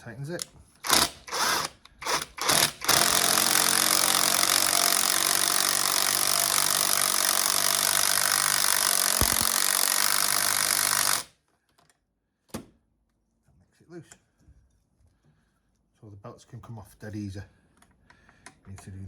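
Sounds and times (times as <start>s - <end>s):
cordless power drill running: 0.8s - 11.3s.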